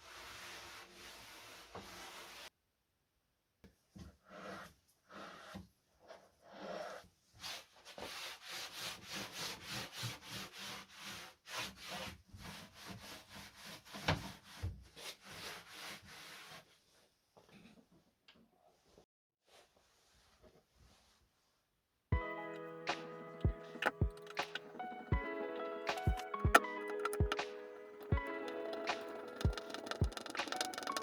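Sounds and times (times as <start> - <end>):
rubbing strokes on wood: 25.9 - 31.0.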